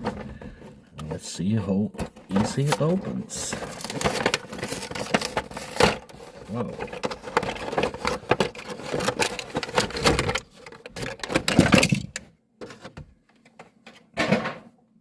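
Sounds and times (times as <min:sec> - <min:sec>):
packaging rustling: 0:02.0 - 0:12.2.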